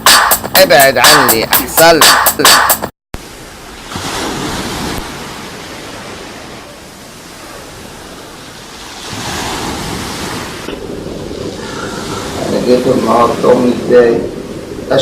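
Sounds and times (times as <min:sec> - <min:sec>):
sea waves washing ashore: 0:03.2 - 0:15.0.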